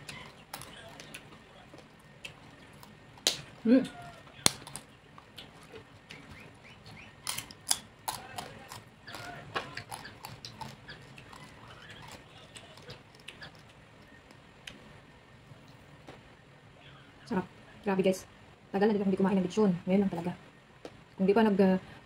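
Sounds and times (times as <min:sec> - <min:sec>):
wet chewing smacks and clicks: 0:00.0 - 0:14.8.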